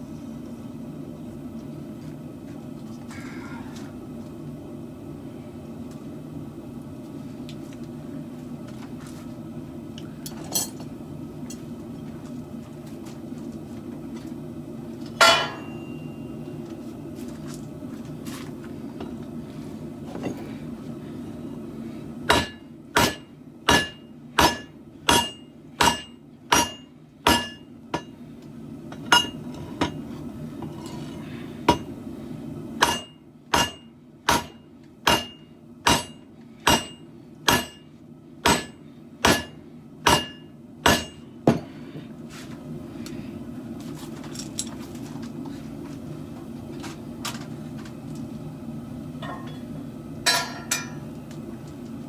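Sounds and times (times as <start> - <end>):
steady low hum: 0.0 - 52.0
hammer striking steel on anvil: 15.2 - 16.4, 22.3 - 28.2, 29.0 - 30.0, 32.8 - 41.7, 50.3 - 51.1.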